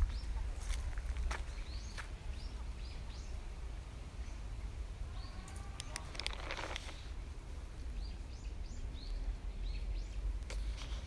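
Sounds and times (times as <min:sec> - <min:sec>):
songbirds chirping: 0:00.0 - 0:11.0
sharp clicks: 0:05.5 - 0:07.0
brief rustle: 0:05.5 - 0:07.1.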